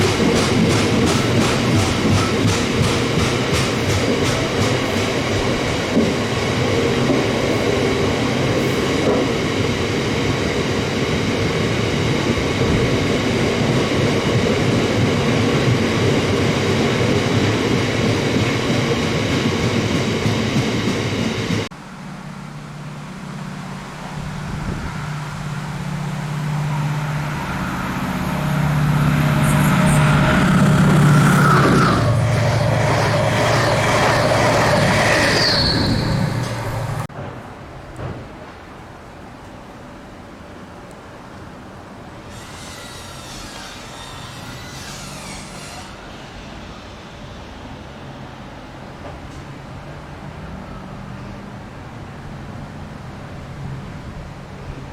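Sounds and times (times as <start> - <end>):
train wheels clattering on rails: 0.0 - 21.7, 24.7 - 38.7
low engine drone: 21.7 - 35.0.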